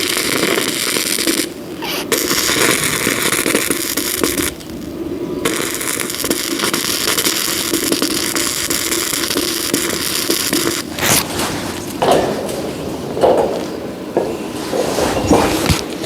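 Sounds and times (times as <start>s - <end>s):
arc welding crackling and sizzling: 0.0s - 16.0s
short knocks: 11.9s - 15.9s.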